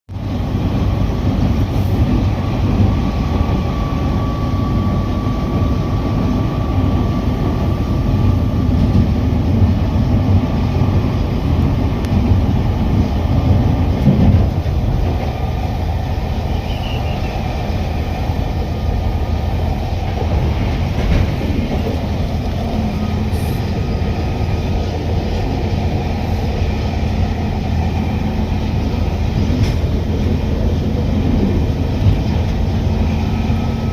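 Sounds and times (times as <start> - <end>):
train rumbling on track: 0.1 - 33.9.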